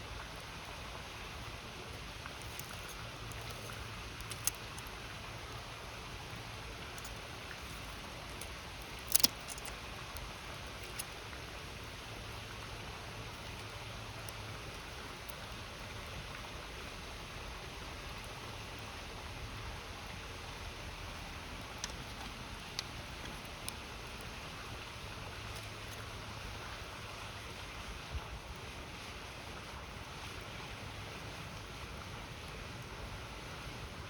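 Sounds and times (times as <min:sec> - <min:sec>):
campfire crackling and popping: 0:00.2 - 0:16.1, 0:21.1 - 0:26.2.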